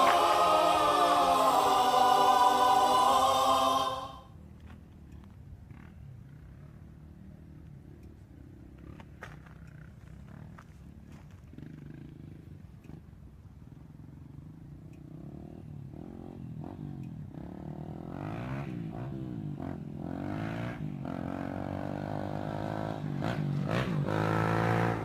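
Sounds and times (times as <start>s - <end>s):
dirt bike engine revving: 17.4s - 25.0s.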